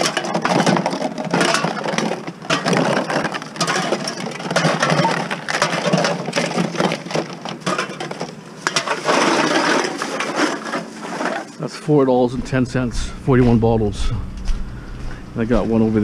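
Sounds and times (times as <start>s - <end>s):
bottles and cans clattering: 0.0s - 11.6s.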